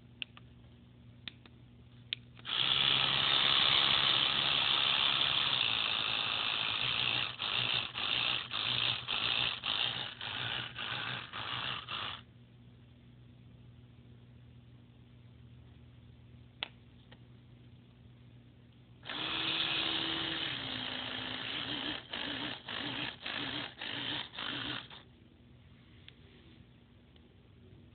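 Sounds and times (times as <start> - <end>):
electric toothbrush buzzing: 2.4 - 12.2, 19.0 - 25.0.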